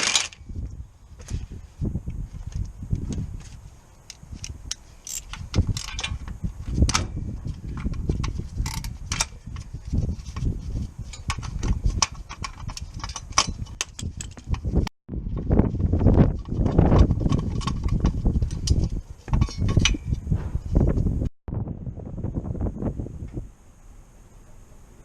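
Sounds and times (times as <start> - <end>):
metal tools clinking and knocking: 4.1 - 6.3, 11.0 - 14.7, 17.0 - 20.2
low rumble: 20.1 - 24.2.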